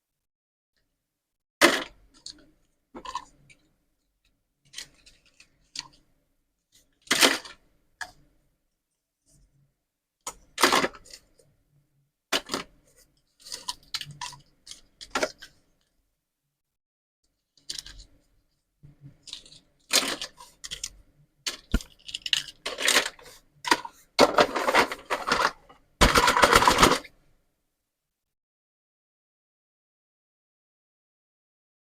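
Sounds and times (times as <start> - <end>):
plastic toy pieces clattering: 7.0 - 7.6, 10.6 - 11.3, 13.4 - 15.5, 17.6 - 18.1, 19.2 - 27.1.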